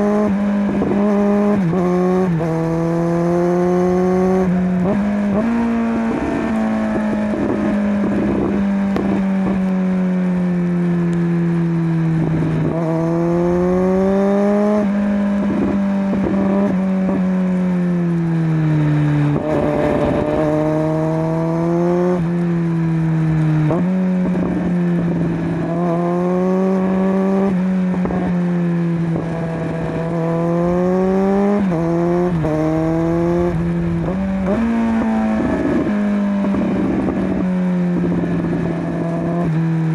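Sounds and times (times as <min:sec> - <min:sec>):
motorcycle engine running: 0:00.0 - 0:39.9
wind rush on microphone: 0:04.4 - 0:09.7, 0:14.8 - 0:17.2, 0:19.2 - 0:20.8, 0:29.0 - 0:39.6.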